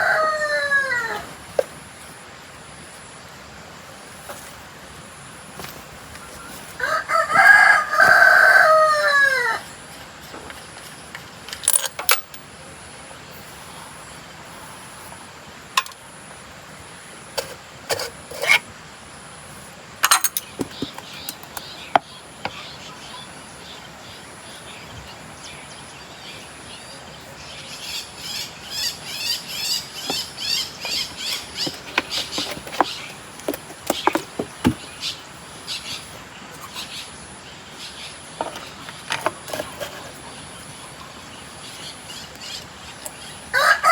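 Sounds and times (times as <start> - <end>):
rooster crowing: 0.0 - 1.4, 6.8 - 9.7, 43.5 - 43.9.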